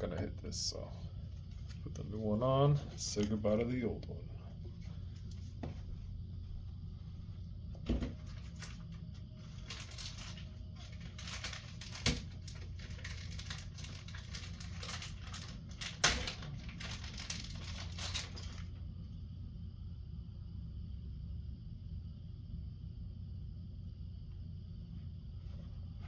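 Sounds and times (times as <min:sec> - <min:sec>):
rustling and scraping plastic parts: 0:00.9 - 0:03.4, 0:07.9 - 0:18.7.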